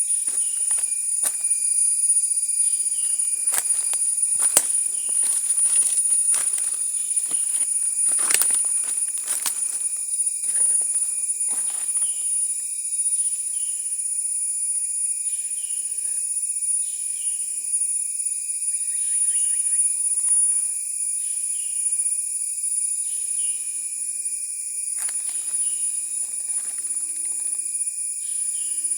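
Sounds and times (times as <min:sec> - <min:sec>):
high-pitched insect drone: 0:00.0 - 0:28.9
steady whine: 0:02.7 - 0:12.0.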